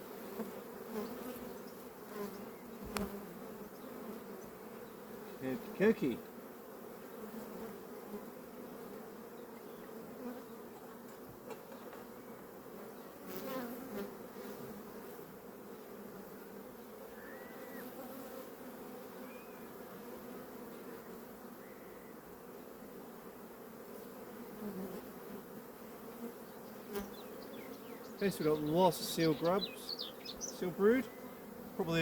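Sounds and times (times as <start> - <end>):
honeybees buzzing: 0.0 - 32.0.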